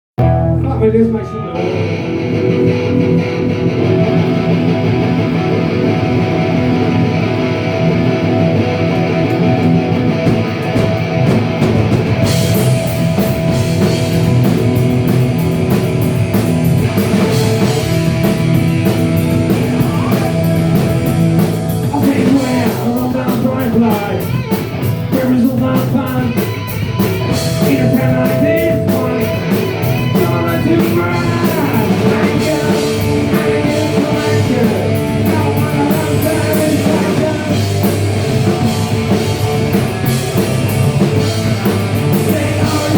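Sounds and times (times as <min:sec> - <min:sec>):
distorted electric guitars: 0:00.2 - 0:42.9
drum kit: 0:02.2 - 0:42.9
person singing: 0:19.5 - 0:21.0, 0:21.8 - 0:26.7, 0:27.3 - 0:39.1, 0:41.1 - 0:42.9.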